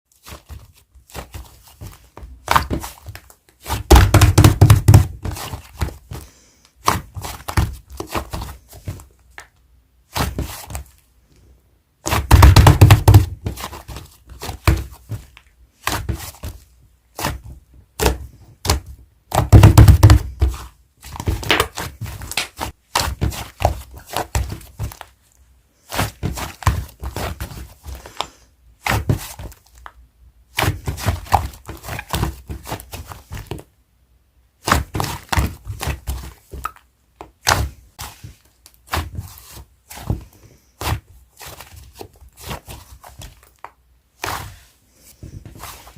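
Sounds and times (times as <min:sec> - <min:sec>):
slime thudding: 0:00.2 - 0:06.2, 0:06.8 - 0:09.4, 0:10.1 - 0:10.9, 0:12.0 - 0:25.1, 0:25.9 - 0:28.2, 0:28.8 - 0:29.6, 0:30.5 - 0:33.7, 0:34.6 - 0:44.7.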